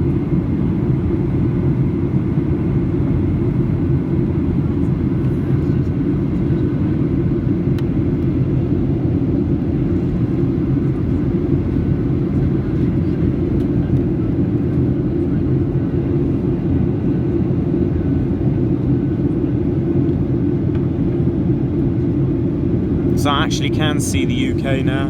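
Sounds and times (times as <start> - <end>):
jet engine rumble: 23.1 - 25.0.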